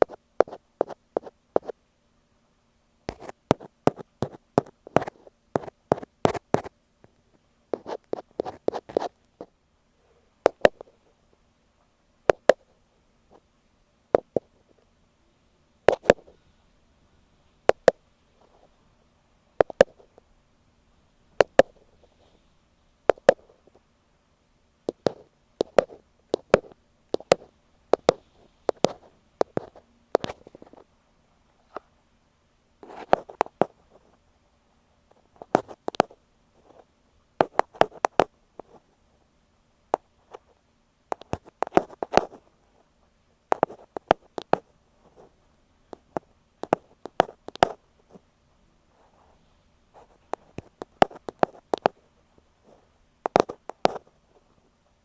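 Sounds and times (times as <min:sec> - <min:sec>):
ear pick tapping microphone: 0:10.5 - 0:11.0, 0:17.7 - 0:18.7, 0:19.6 - 0:20.3, 0:23.1 - 0:23.8, 0:24.9 - 0:30.8, 0:43.5 - 0:45.3, 0:45.9 - 0:48.2, 0:50.0 - 0:52.0, 0:53.2 - 0:54.1.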